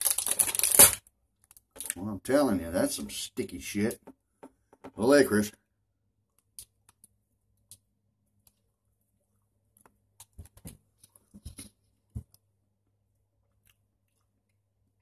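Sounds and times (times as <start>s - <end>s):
wet chewing clicks and smacks: 13.4s - 14.6s.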